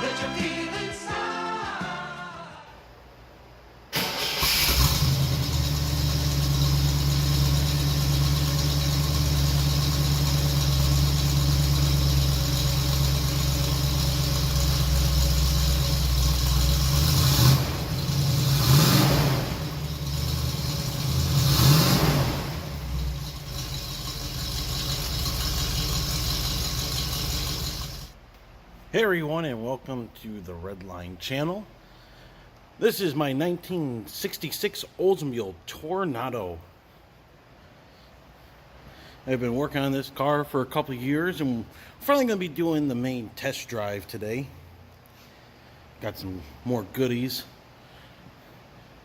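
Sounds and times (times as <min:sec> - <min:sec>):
car engine idling and revving: 0:04.6 - 0:28.2.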